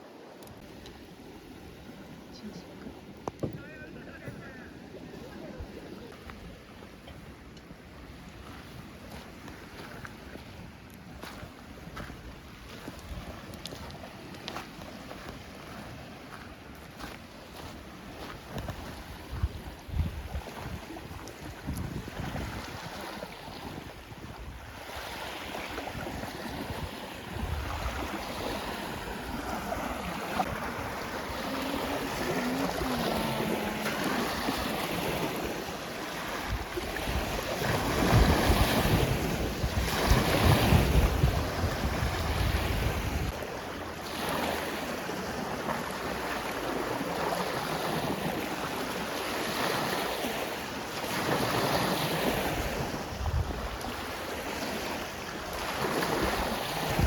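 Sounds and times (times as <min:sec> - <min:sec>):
lake waves washing onto shore: 0:00.0 - 0:57.0
wind gusting on microphone: 0:18.1 - 0:43.6, 0:51.1 - 0:57.0.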